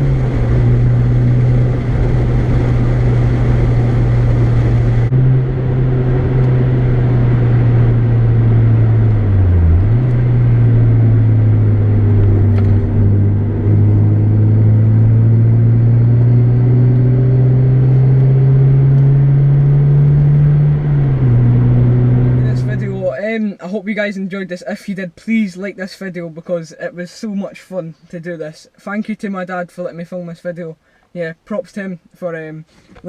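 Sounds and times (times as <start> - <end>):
car engine and loud exhaust: 0.0 - 23.1.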